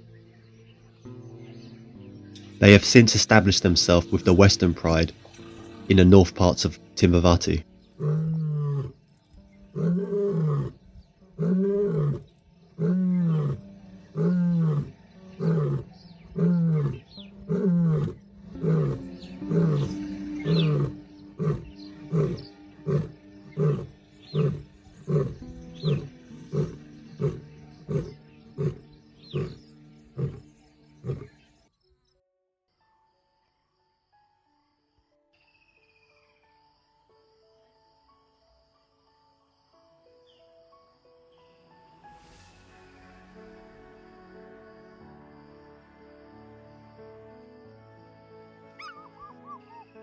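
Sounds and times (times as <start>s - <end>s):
lion roaring: 8.0s - 9.0s, 9.8s - 10.8s, 11.4s - 29.6s, 30.2s - 31.4s.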